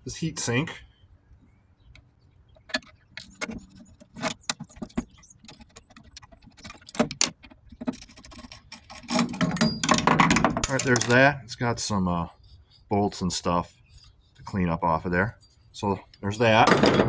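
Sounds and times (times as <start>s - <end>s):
metallic clicks and rattles: 1.9s - 11.4s.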